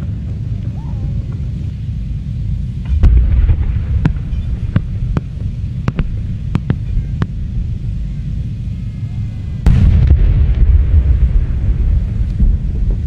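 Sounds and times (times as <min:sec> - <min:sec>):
fireworks rumbling bursts: 0:00.0 - 0:13.0
sharp firework cracks: 0:02.9 - 0:07.4.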